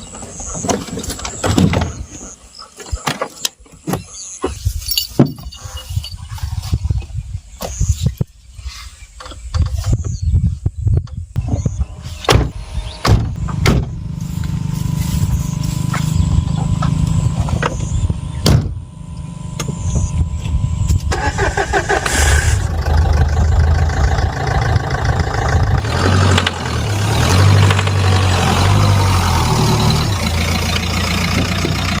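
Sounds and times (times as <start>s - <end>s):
car engine starting and running: 11.4s - 32.0s.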